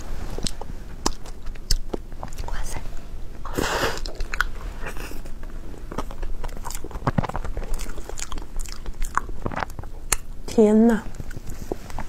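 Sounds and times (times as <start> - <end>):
person biting and chewing: 0.4 - 2.4, 3.6 - 10.3.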